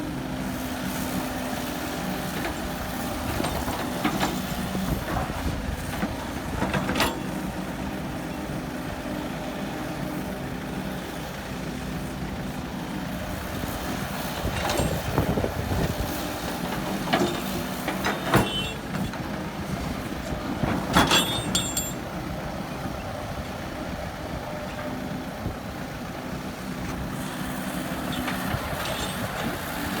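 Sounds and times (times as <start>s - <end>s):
diesel engine running: 0.0s - 30.0s
sharp metallic clanks: 21.0s - 22.0s.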